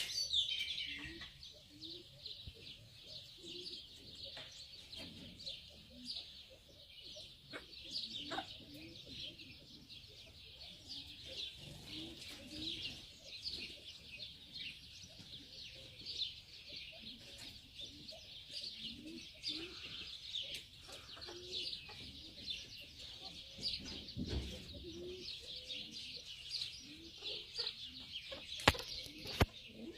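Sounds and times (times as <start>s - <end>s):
birds chirping: 0.0s - 29.9s
low bird calls: 0.0s - 29.9s.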